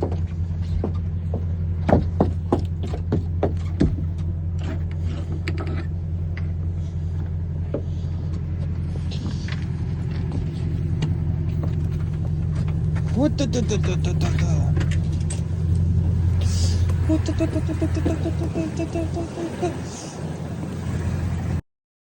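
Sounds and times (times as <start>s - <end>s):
engine droning: 0.0s - 21.6s
sharp knocks: 0.8s - 4.1s.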